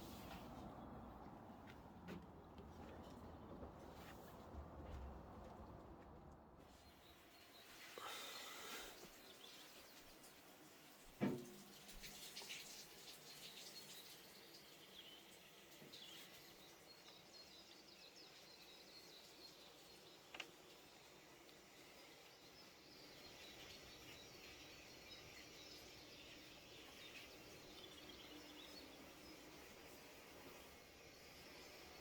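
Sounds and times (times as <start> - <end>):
faint birdsong: 6.6 - 11.0, 11.7 - 32.0.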